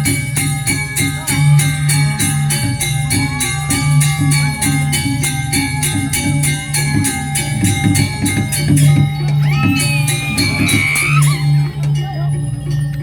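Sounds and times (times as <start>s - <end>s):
gamelan music: 0.0s - 13.0s.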